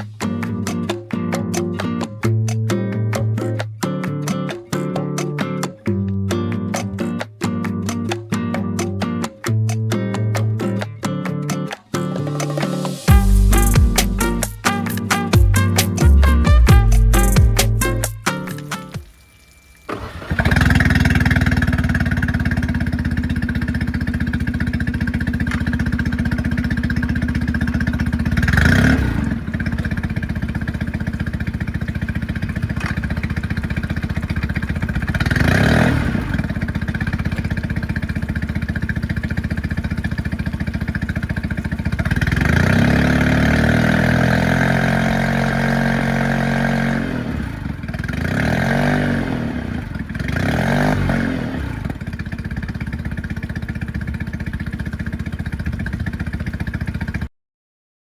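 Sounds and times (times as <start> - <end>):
outboard motor running: 19.9 - 48.2, 51.4 - 57.3.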